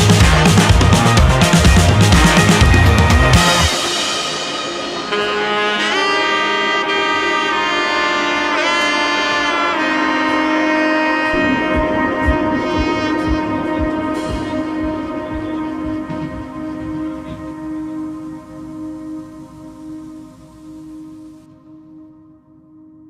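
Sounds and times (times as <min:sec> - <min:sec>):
sustained chords: 0:00.0 - 0:08.6, 0:09.2 - 0:22.6
melody of long held notes: 0:00.0 - 0:23.0
soft low beat: 0:11.3 - 0:21.4.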